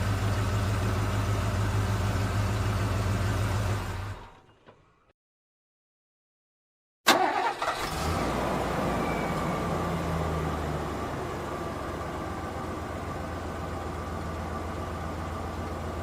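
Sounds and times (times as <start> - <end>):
vehicle engine running: 0.0 - 4.5, 8.0 - 16.0.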